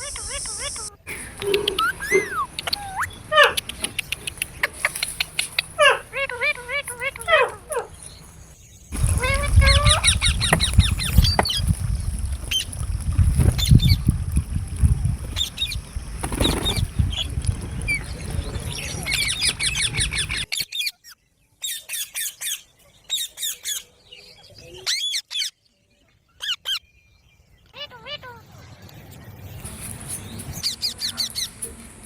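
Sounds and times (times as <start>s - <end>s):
parrots squawking: 0.0s - 8.1s, 9.0s - 11.6s
heavy low rumble: 9.0s - 20.5s.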